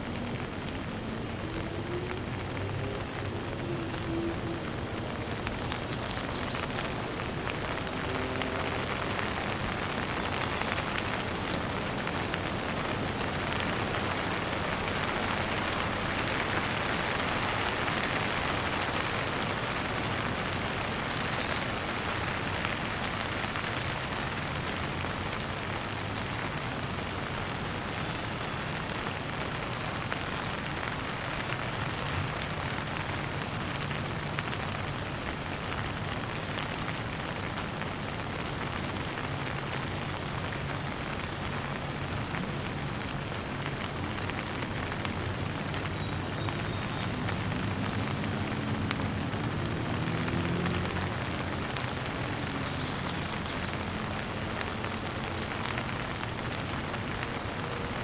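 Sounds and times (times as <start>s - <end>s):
gentle rain falling: 0.0s - 58.0s
bird chirping: 20.4s - 21.8s.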